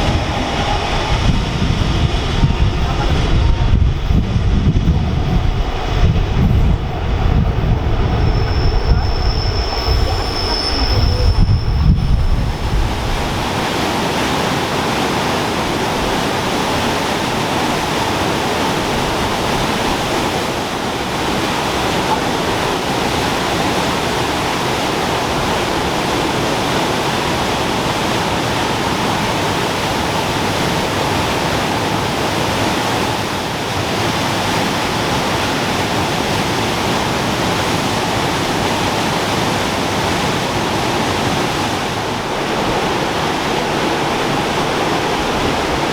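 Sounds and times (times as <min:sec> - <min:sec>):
high wheel squeal: 0:00.0 - 0:14.3
rushing water: 0:00.0 - 0:45.9
train rumbling past: 0:00.0 - 0:45.9.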